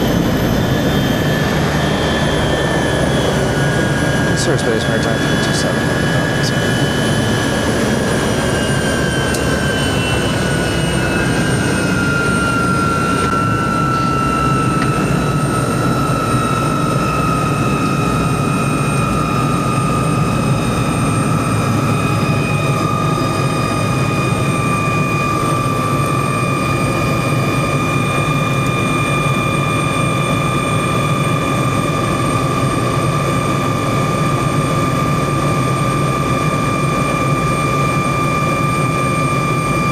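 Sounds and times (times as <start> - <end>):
high whine: 0.0 - 15.3
helicopter engine and rotor: 0.0 - 39.9.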